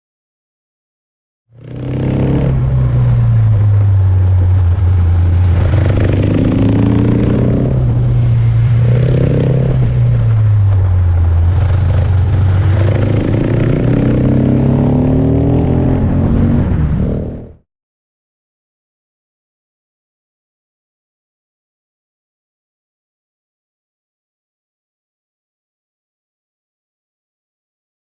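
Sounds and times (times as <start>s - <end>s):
motorcycle engine revving: 1.5s - 17.6s.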